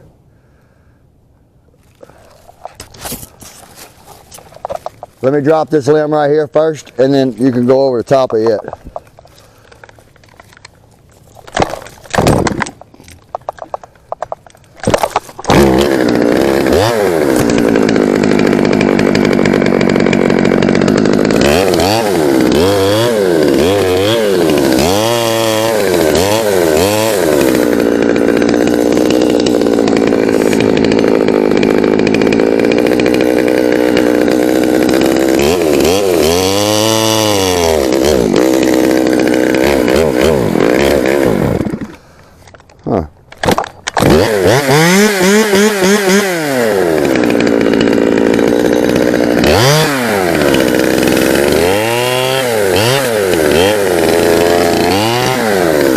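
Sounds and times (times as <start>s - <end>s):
chainsaw engine revving: 14.8s - 42.6s, 43.4s - 55.9s.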